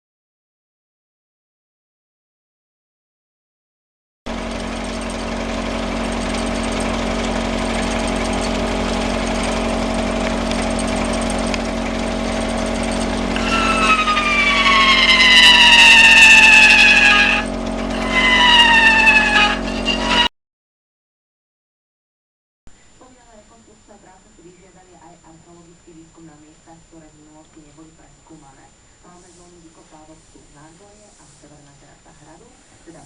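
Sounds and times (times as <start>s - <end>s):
stirling engine humming: 4.3s - 20.3s
whine sliding down in pitch: 12.4s - 20.3s.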